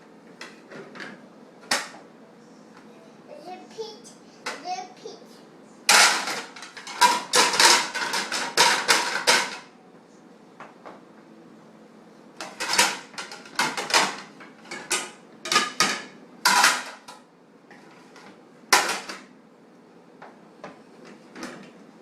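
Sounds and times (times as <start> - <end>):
dishes clinking and clattering: 5.9 - 9.7, 12.4 - 17.2.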